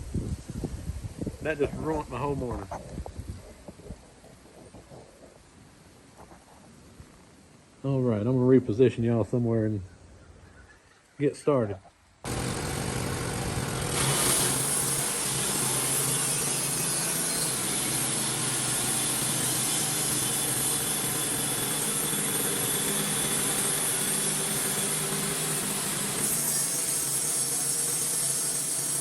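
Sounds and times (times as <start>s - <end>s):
band sawmill cutting log: 12.3s - 29.0s.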